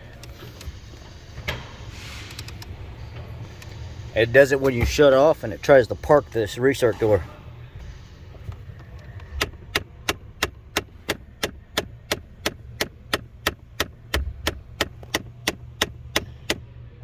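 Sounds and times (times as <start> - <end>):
actuator ticking: 9.4 - 16.6.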